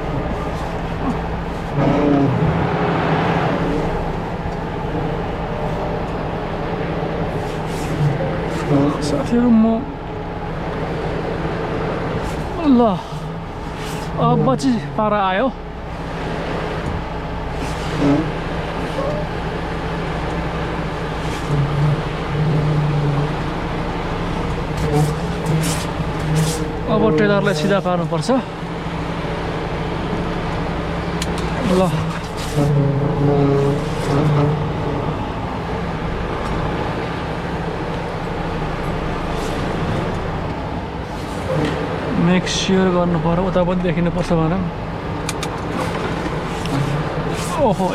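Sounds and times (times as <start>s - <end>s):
diesel truck engine idling: 0.0s - 47.9s
low droning tone: 17.2s - 29.1s.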